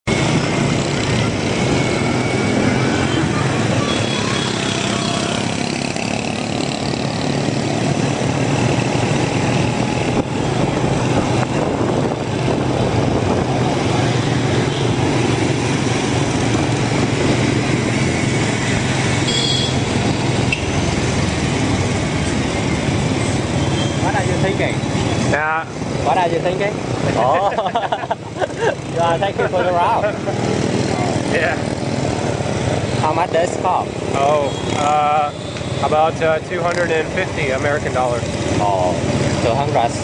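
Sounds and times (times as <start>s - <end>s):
road and traffic noise: 0.0s - 40.0s.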